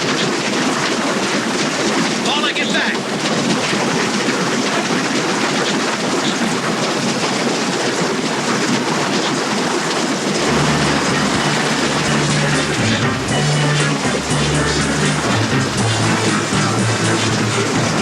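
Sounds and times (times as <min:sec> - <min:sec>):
train rushing rumble: 0:10.2 - 0:18.0
low sustained music notes: 0:10.4 - 0:18.0.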